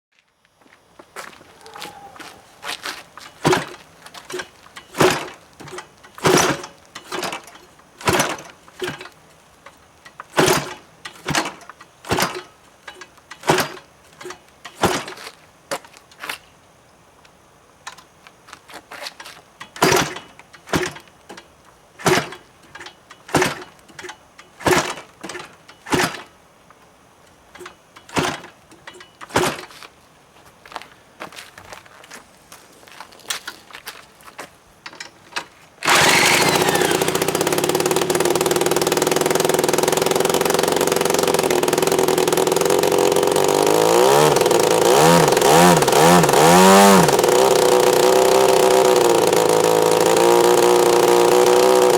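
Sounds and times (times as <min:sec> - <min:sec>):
footsteps walking: 0:00.1 - 0:04.8, 0:29.7 - 0:34.6.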